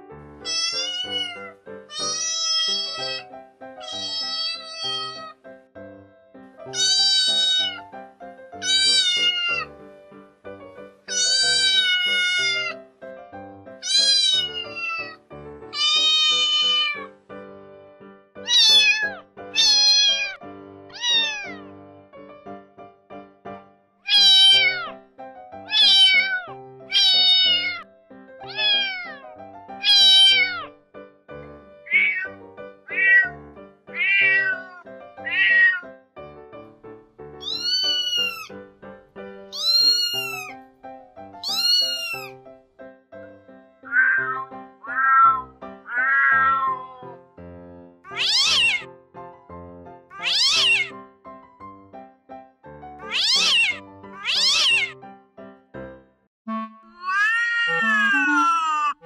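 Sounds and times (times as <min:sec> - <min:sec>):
background music: 0:00.2 - 0:52.2
kitten meowing: 0:00.4 - 0:05.4, 0:06.7 - 0:07.9, 0:08.6 - 0:09.7, 0:11.1 - 0:12.8, 0:13.8 - 0:17.2, 0:18.4 - 0:21.7, 0:24.1 - 0:25.0, 0:25.7 - 0:27.8, 0:28.4 - 0:30.7, 0:31.9 - 0:35.9, 0:37.4 - 0:38.6, 0:39.5 - 0:40.6, 0:41.4 - 0:42.4, 0:43.8 - 0:47.2, 0:48.1 - 0:48.9, 0:50.1 - 0:51.0, 0:53.0 - 0:55.0, 0:56.8 - 0:59.0.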